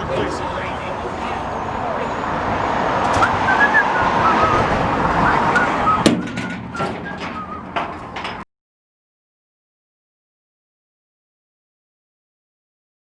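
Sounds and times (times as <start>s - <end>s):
outdoor background rush: 0.0s - 8.4s.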